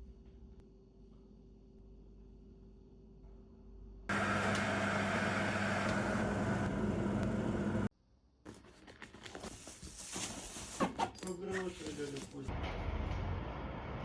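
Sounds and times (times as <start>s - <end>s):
motor humming: 4.1s - 7.9s.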